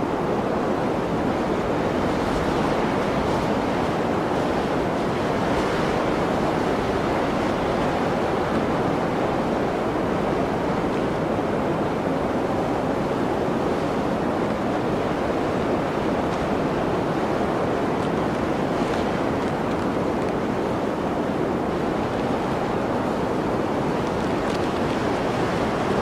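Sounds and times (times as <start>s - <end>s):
blizzard wind blowing: 0.0s - 26.0s.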